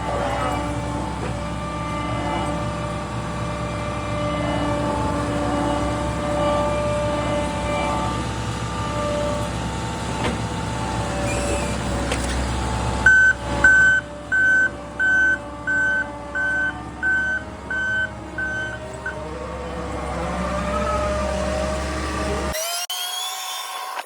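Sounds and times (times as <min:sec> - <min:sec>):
skid steer engine running: 0:00.0 - 0:22.6
backup alarm beeping: 0:13.1 - 0:19.2.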